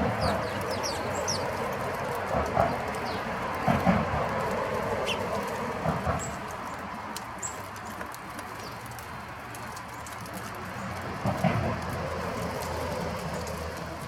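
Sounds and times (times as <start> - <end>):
small birds chirping: 0.0 - 1.9, 2.6 - 3.4, 5.0 - 5.4, 6.2 - 8.9.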